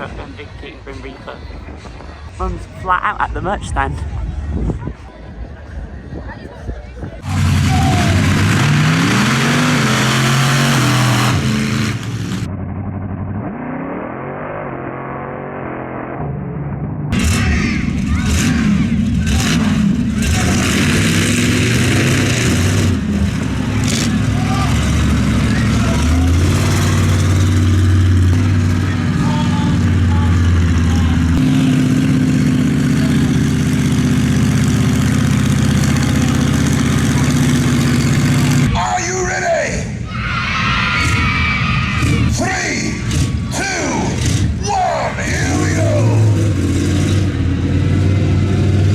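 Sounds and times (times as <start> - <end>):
large vehicle engine idling: 0.0 - 9.2, 17.2 - 40.1
vehicle engine revving: 7.2 - 38.8, 41.0 - 48.9.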